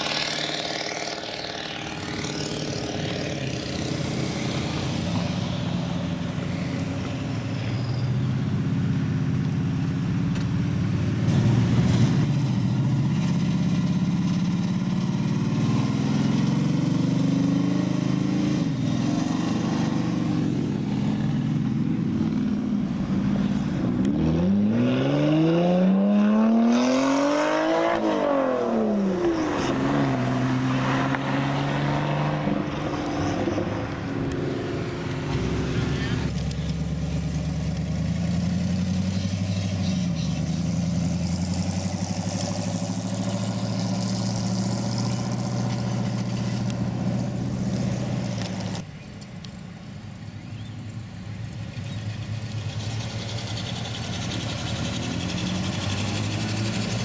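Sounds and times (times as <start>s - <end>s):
car engines driving past: 0.0s - 49.1s, 50.0s - 57.0s
engine revving: 11.1s - 48.8s, 51.9s - 57.0s.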